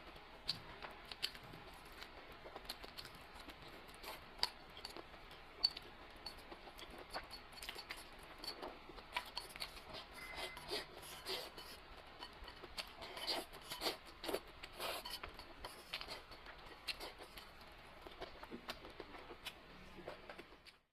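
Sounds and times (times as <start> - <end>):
wet chewing clicks and smacks: 0.0 - 10.2.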